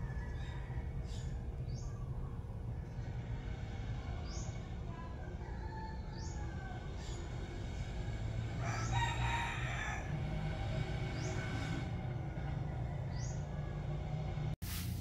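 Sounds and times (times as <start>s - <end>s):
rooster crowing: 0.0s - 1.9s, 4.3s - 11.4s
low background rumble: 0.0s - 14.6s.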